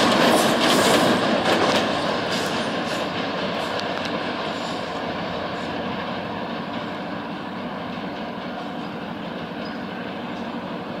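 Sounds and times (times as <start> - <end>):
diesel locomotive engine hum: 0.0 - 11.0
train rolling: 0.0 - 11.0.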